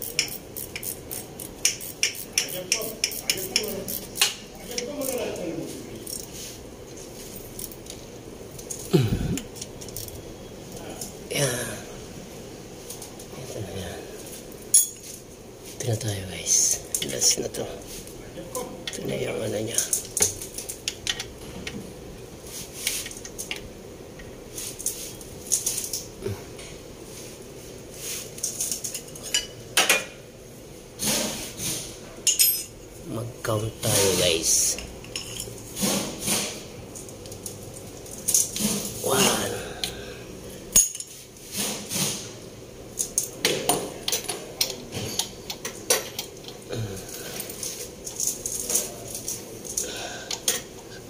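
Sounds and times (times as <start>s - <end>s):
steady low hum: 0.0s - 51.0s
metal tools clinking: 14.6s - 15.3s, 32.2s - 32.8s, 34.6s - 35.7s, 40.7s - 41.2s.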